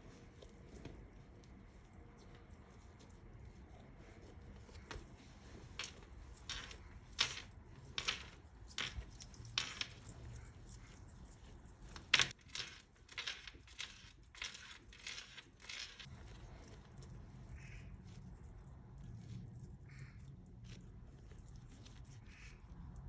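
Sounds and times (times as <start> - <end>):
kitchen clinks and rustles: 4.7 - 17.7.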